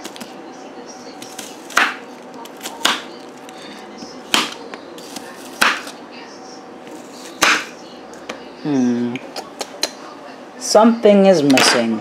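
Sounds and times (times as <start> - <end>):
knife chopping on cutting board: 1.2 - 3.1, 4.3 - 5.9, 7.3 - 7.7.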